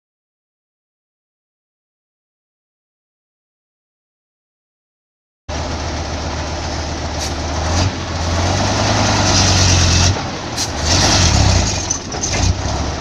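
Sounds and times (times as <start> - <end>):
heavy diesel engine clattering: 5.5 - 13.0.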